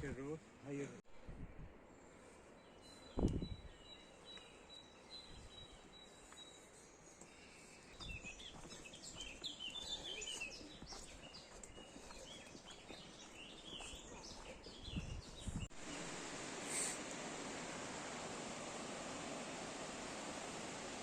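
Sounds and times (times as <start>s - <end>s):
songbirds chirping and whistling: 2.2s - 15.7s.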